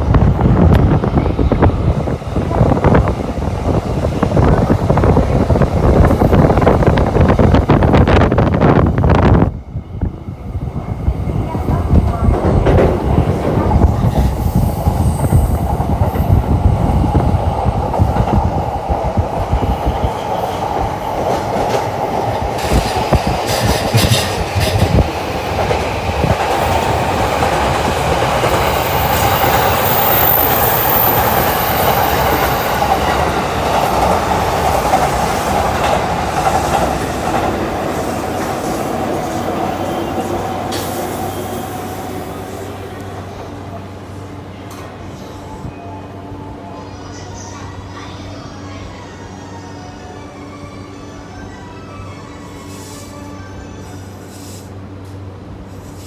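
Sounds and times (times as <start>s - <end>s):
train rumbling with rapid thumps: 0.0s - 43.6s
train hum: 0.0s - 56.0s.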